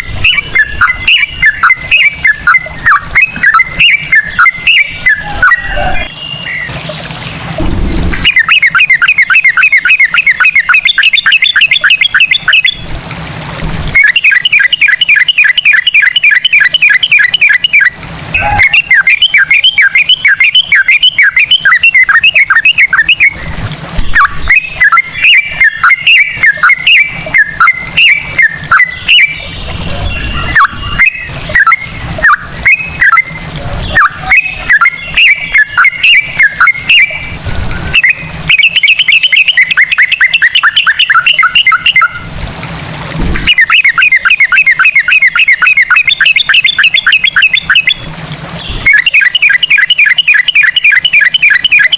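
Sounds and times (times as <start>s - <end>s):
bird singing: 0.0s - 51.9s.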